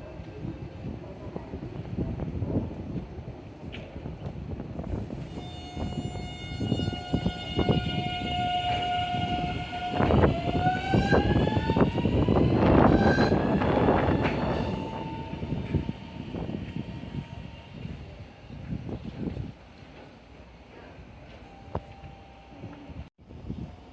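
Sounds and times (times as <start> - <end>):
train wheels clattering on rails: 0.3 - 22.9
electric train motor whining: 5.0 - 18.2.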